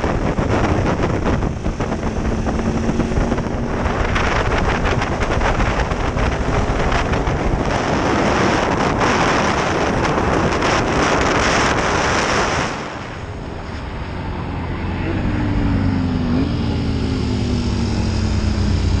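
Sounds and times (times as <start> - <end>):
motorcycle engine running: 0.0 - 12.0
wind rushing over microphone: 0.0 - 19.0.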